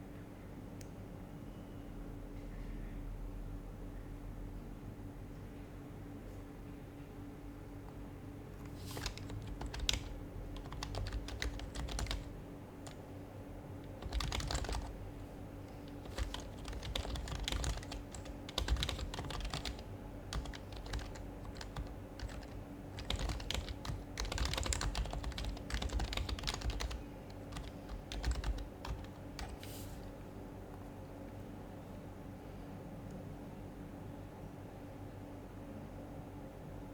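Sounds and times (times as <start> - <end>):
soft muted keyboard typing: 8.6 - 30.8.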